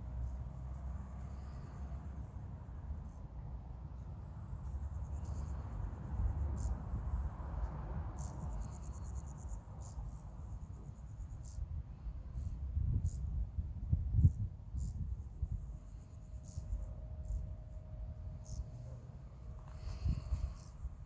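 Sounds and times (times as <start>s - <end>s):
insects trilling: 8.1s - 11.6s, 16.0s - 17.4s, 18.4s - 18.6s.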